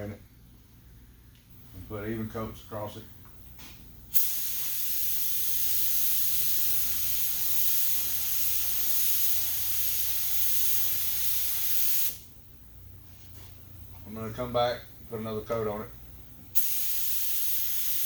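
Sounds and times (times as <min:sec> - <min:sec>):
paint spray gun hissing: 0:04.1 - 0:12.3, 0:16.6 - 0:18.0.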